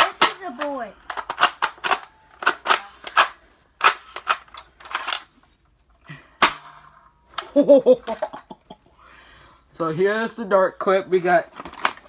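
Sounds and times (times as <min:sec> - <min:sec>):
plastic clicks and rustles: 0:11.3 - 0:12.0.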